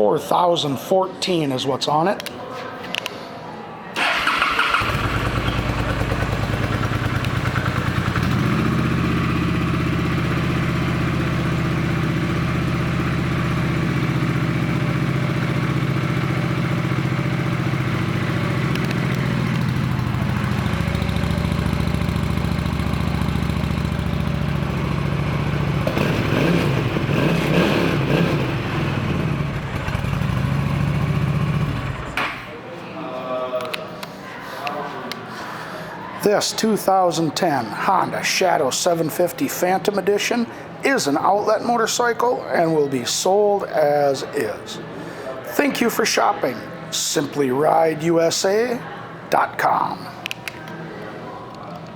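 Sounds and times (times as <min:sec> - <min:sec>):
motorcycle engine idling and revving: 0:04.0 - 0:32.4.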